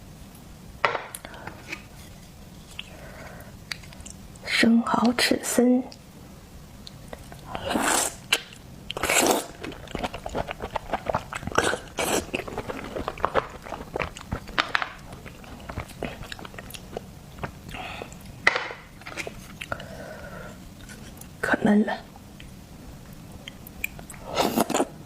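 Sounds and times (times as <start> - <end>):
wet chewing: 6.8 - 18.4.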